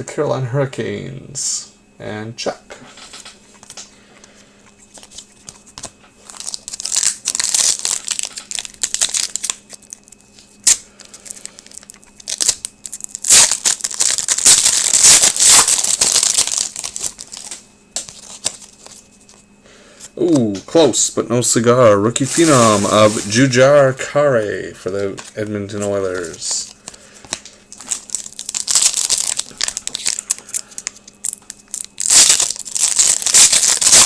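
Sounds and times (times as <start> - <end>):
foil wrapper crinkling and tearing: 4.9 - 19.4, 22.2 - 23.6, 24.9 - 34.0.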